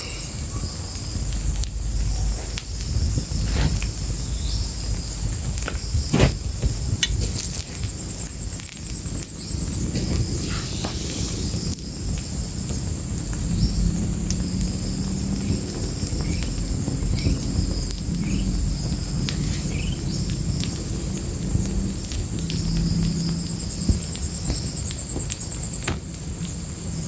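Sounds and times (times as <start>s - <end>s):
fire crackling: 0.0s - 27.0s
insects trilling: 0.0s - 27.0s
low rumble: 0.3s - 8.2s.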